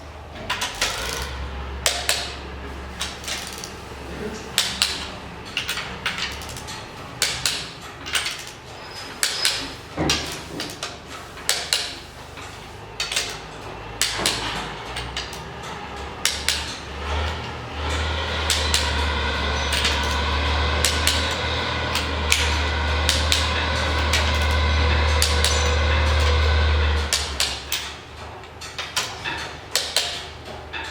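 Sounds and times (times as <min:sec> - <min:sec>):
engine drone: 0:00.0 - 0:08.0, 0:12.4 - 0:28.5.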